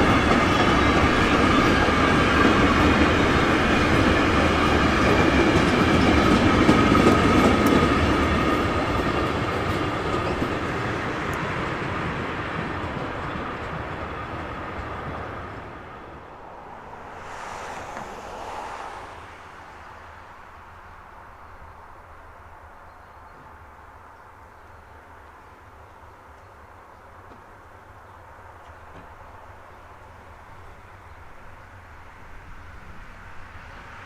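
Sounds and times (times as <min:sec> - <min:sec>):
train wheels rumbling on rails: 0:00.0 - 0:21.6.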